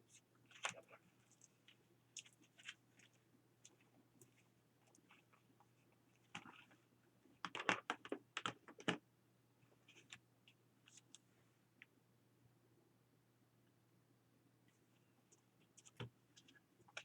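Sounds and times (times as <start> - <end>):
paper crinkling and crackling: 0.0 - 9.0.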